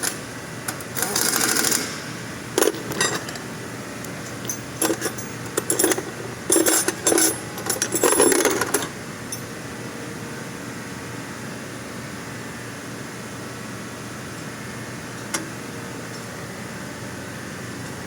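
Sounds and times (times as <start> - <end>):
steady background hum: 0.0 - 18.0
metal tools clinking: 2.6 - 3.5, 4.1 - 9.6.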